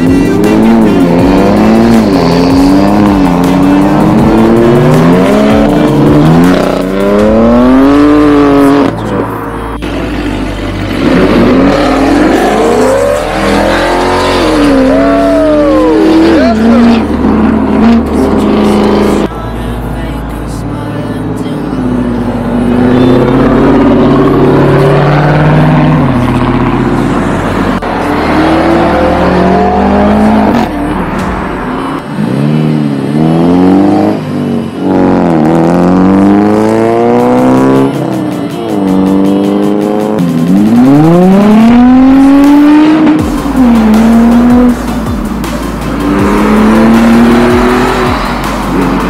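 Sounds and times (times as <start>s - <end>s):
music with stepping bass line: 0.0s - 9.0s, 36.8s - 49.0s
car engines revving: 0.0s - 49.0s.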